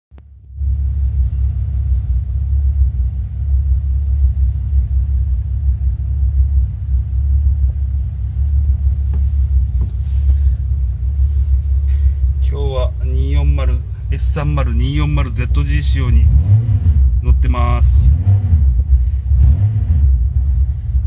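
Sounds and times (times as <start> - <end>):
car engine idling: 0.1 - 21.0.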